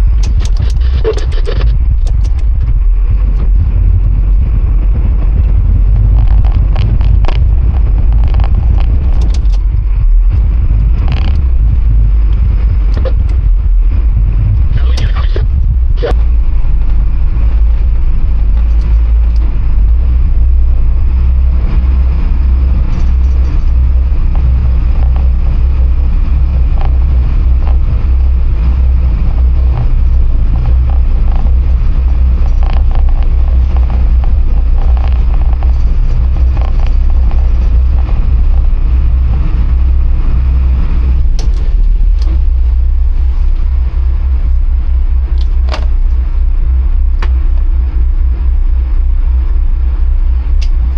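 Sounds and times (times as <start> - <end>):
boat engines rumbling: 0.0 - 50.9
hull wash through water: 0.0 - 50.9.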